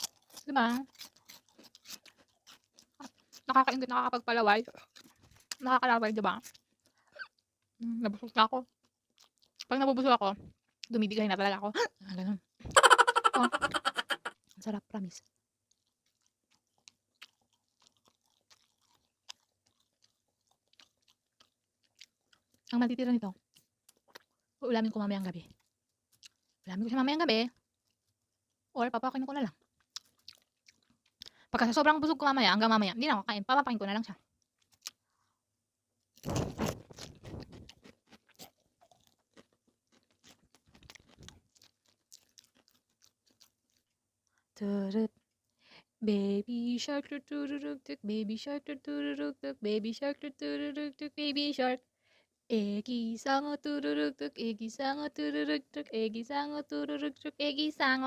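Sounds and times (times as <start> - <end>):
faint chewing of food: 0.0 - 9.8, 14.3 - 24.6, 25.2 - 26.8, 27.4 - 28.7, 29.5 - 31.6, 34.1 - 35.4, 36.0 - 46.0.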